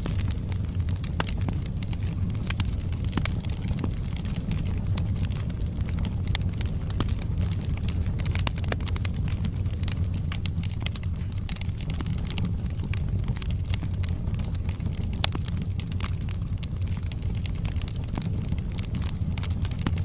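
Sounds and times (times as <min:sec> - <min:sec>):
fire low rumble: 0:00.0 - 0:20.0
logs crackling and popping: 0:00.0 - 0:20.0.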